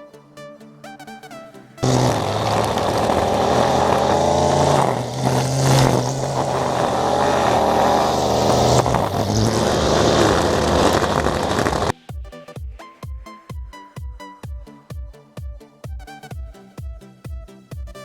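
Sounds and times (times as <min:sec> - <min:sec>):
music: 0:00.0 - 0:01.9, 0:11.9 - 0:18.0
small gasoline engine running: 0:01.8 - 0:11.9.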